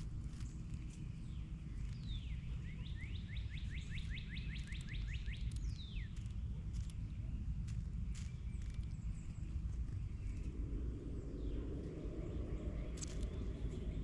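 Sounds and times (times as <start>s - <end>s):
songbird whistling: 1.9s - 6.3s
scattered clicks: 3.9s - 10.0s
low rumble: 5.5s - 14.0s.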